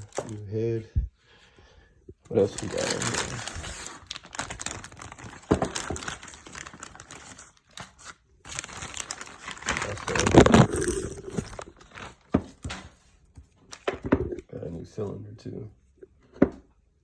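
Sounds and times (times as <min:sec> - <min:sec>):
packaging crinkling and rustling: 0:00.0 - 0:00.4, 0:02.3 - 0:14.4.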